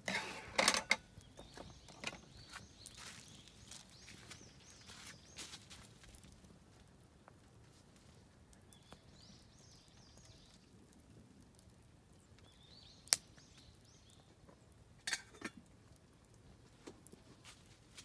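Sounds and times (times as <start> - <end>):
birds chirping: 0.1 - 5.6
campfire crackling and popping: 1.0 - 18.0.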